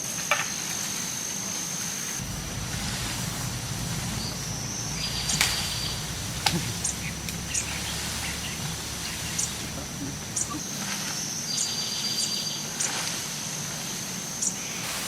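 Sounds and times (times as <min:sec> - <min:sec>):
high-pitched insect drone: 0:02.2 - 0:10.6
low rumble: 0:02.2 - 0:10.7.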